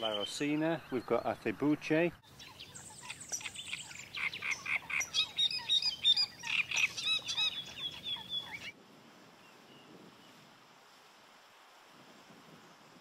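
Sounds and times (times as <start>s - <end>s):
faint steady hiss: 0.0s - 13.0s
chorus of chirping animal calls: 2.3s - 8.7s.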